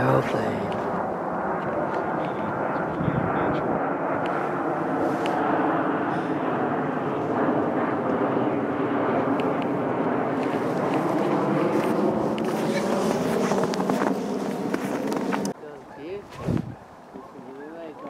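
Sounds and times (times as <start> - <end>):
airplane engines passing overhead: 0.0 - 18.0.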